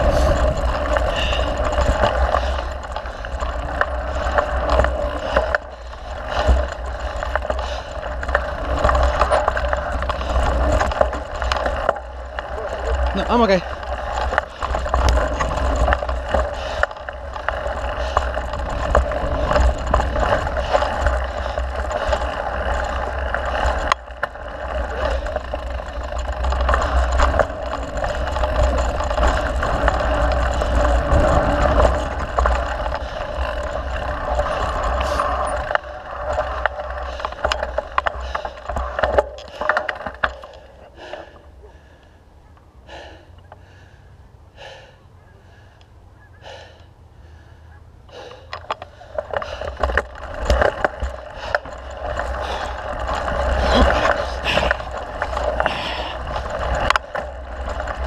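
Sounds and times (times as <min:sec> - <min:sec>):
bike rattling over bumps: 0:00.0 - 0:58.0
tyre and wind rush: 0:24.6 - 0:37.0.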